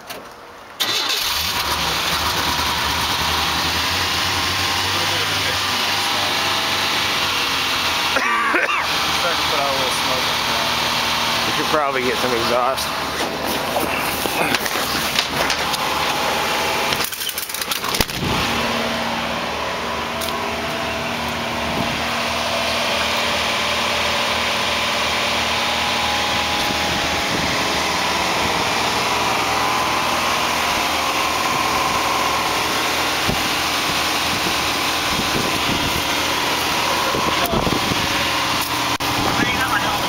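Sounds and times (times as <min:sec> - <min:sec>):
pickup engine idling: 0:00.8 - 0:40.0
engine knocks: 0:12.0 - 0:18.7.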